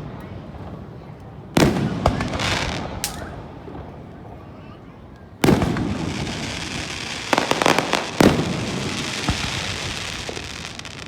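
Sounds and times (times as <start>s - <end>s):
sharp firework pops: 1.6s - 3.8s, 5.4s - 11.0s
fireworks crackling: 1.6s - 4.3s, 5.3s - 11.0s.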